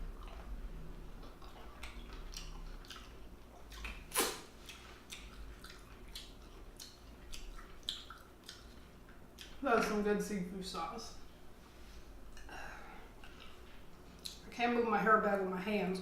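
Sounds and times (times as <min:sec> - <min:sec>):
wet mouth smacks while eating: 0:03.7 - 0:08.8.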